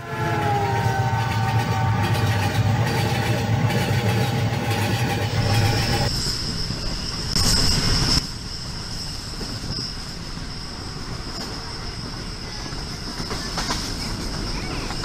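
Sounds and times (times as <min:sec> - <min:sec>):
track noise: 0:00.0 - 0:08.2
rail car rumbling on track: 0:00.0 - 0:15.0
high-pitched wheel squeal: 0:04.8 - 0:15.0.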